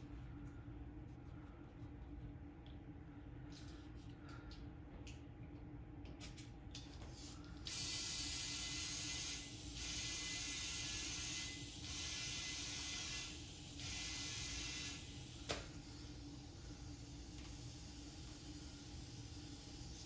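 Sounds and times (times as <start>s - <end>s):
compressed air hissing: 7.1s - 20.0s.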